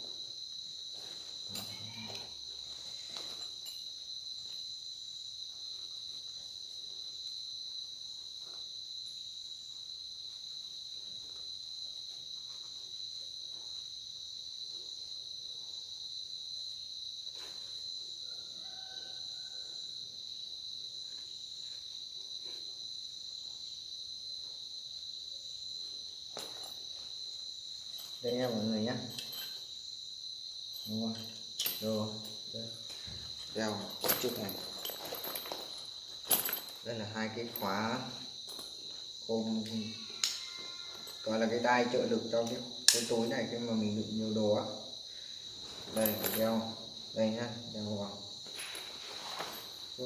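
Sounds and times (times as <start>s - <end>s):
crickets trilling: 0.0s - 50.0s
strap rustling and clicking: 32.8s - 36.9s.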